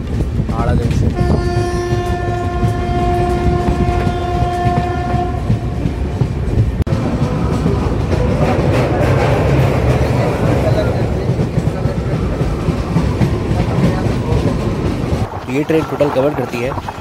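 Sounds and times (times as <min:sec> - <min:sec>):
train wheels rattling on track: 0:00.0 - 0:17.0
train horn long note: 0:01.2 - 0:05.8.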